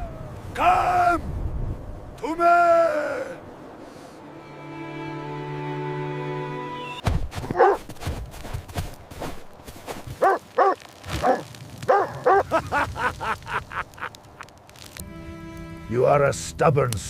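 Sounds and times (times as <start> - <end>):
dog barking sharply: 7.5 - 7.8.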